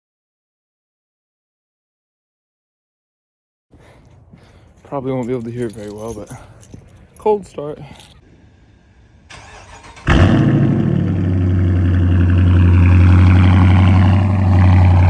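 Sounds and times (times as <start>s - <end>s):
car engine starting and idling: 7.5s - 15.0s.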